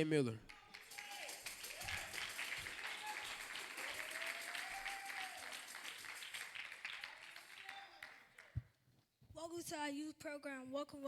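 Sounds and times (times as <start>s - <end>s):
congregation applauding: 0.0s - 8.6s.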